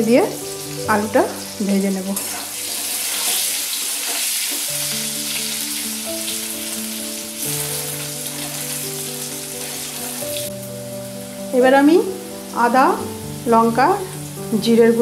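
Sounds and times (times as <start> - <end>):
potato sizzling in oil: 0.0 - 15.0
soft background music: 0.0 - 15.0
spatula turning food: 1.6 - 10.5.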